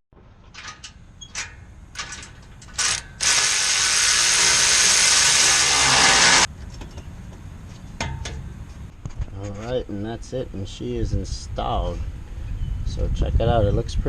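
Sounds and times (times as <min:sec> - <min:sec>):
power tool running: 0:02.8 - 0:06.5.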